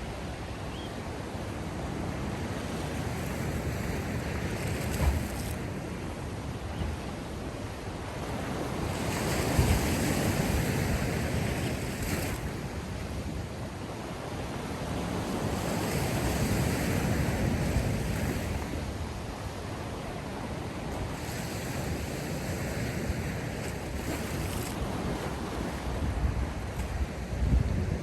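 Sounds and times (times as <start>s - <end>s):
sea waves washing in: 0.0s - 28.0s.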